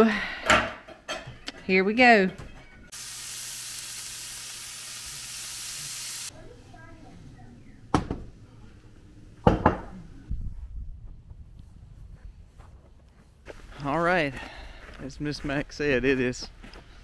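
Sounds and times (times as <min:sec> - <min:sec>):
bacon sizzling on a griddle: 0:02.9 - 0:06.3.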